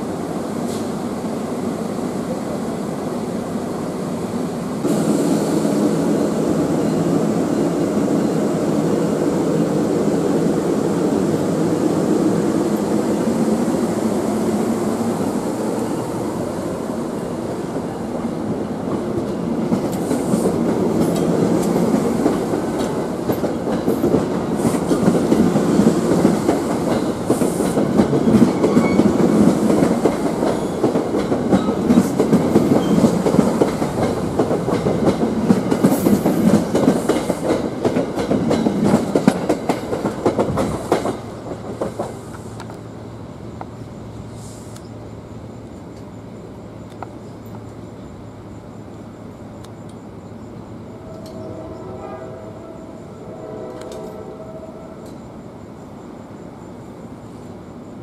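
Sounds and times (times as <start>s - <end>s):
train wheels clattering over rail joints: 18.8s - 42.8s.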